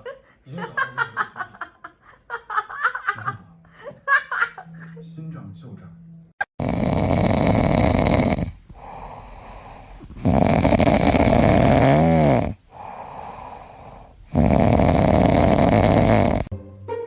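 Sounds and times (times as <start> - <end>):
animal snoring: 6.5 - 16.5.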